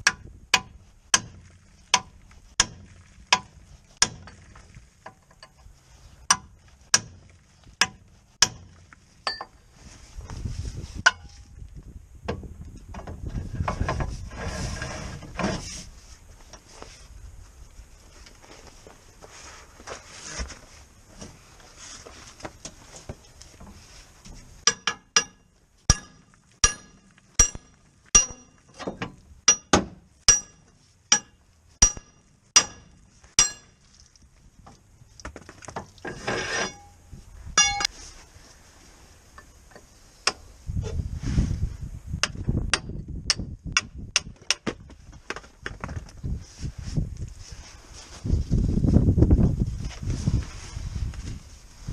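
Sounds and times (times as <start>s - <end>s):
low rumble with clicks: 0.0s - 14.4s
metal tapping on metal: 6.3s - 7.2s, 7.8s - 9.6s, 11.0s - 11.4s, 24.6s - 33.8s, 37.6s - 37.9s.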